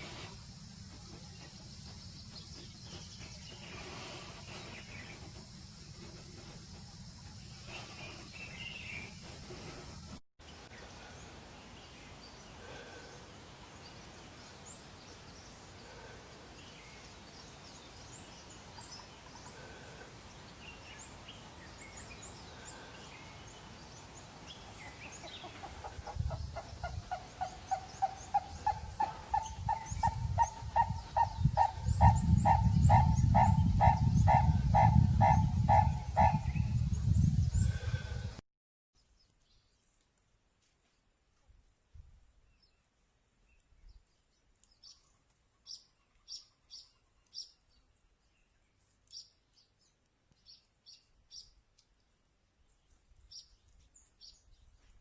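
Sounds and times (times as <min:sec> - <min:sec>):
small birds chirping: 0:10.6 - 0:38.0.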